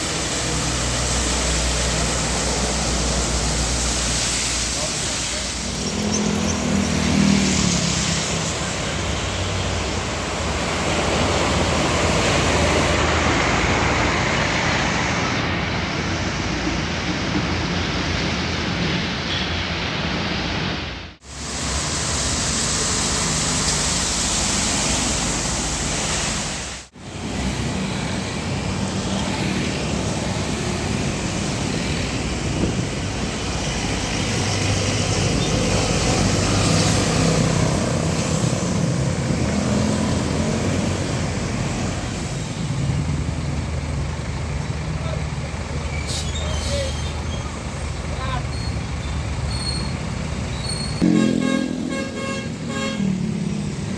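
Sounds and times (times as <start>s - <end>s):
heavy trucks passing: 0.0s - 53.9s
low engine drone: 51.0s - 53.9s.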